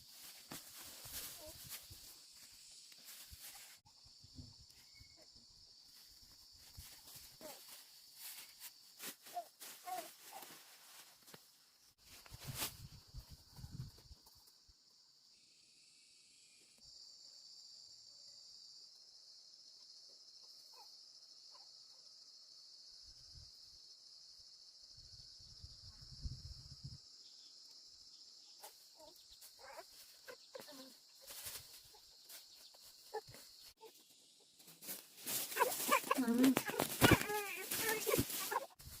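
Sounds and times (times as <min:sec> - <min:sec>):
insects droning: 0:00.0 - 0:39.0.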